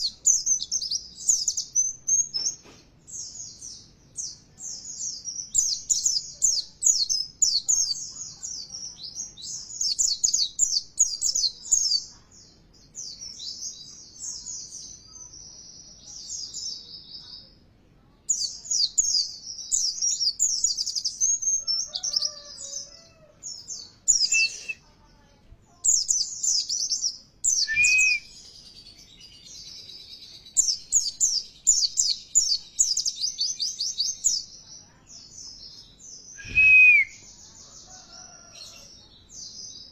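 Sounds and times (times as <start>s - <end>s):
bird twittering: 25.9s - 28.5s
low whistled bird notes: 27.5s - 28.4s, 36.4s - 37.3s.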